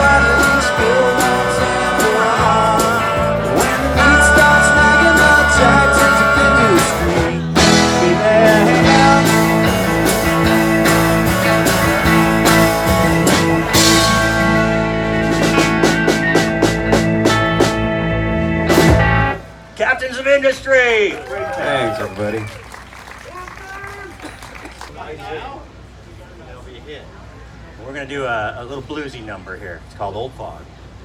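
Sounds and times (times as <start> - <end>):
sharp rhythmic hits: 0.0 - 18.0
live rock band playing: 0.0 - 19.7
guitar: 0.0 - 20.9.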